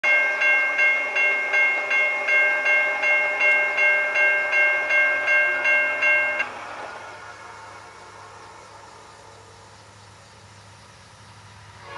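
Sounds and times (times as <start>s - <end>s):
railroad bell ringing: 0.0s - 6.5s.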